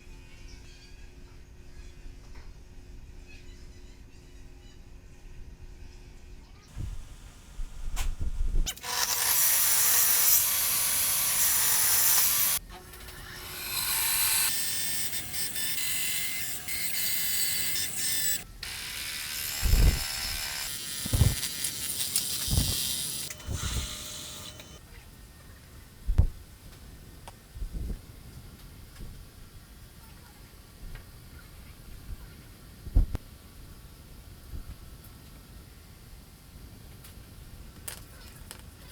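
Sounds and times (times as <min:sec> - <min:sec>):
loud hissing tool: 0:08.7 - 0:24.8.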